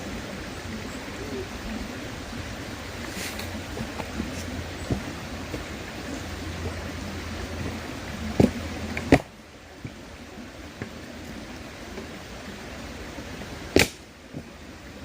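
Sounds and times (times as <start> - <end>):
river rushing: 0.0 - 15.0
campfire crackling and popping: 13.7 - 14.1.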